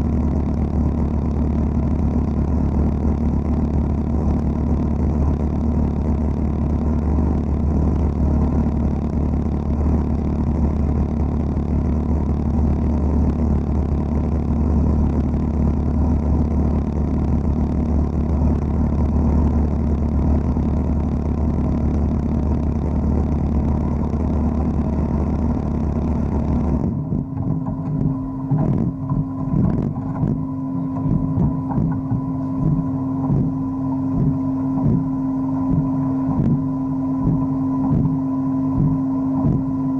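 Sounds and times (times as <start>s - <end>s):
higher steady hum: 0.0s - 39.9s.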